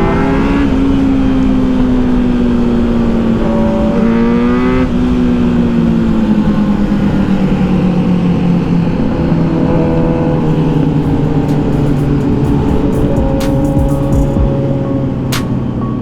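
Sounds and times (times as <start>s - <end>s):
motorcycle engine revving: 0.0s - 15.6s
steady rushing noise: 4.9s - 16.0s.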